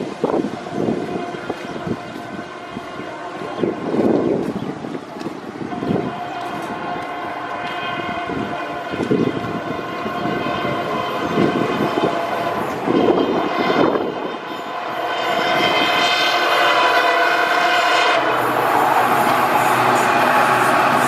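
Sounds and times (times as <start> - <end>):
train noise: 0.0 - 21.0
locomotive horn: 0.4 - 4.4, 5.5 - 21.0.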